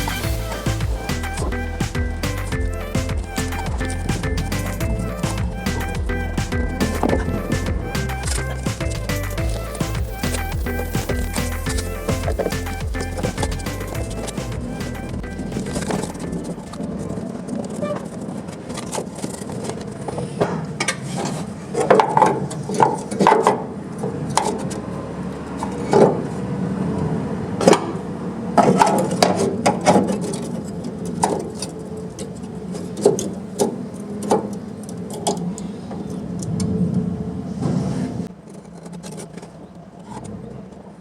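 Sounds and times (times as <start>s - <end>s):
steady low hum: 0.0s - 17.1s.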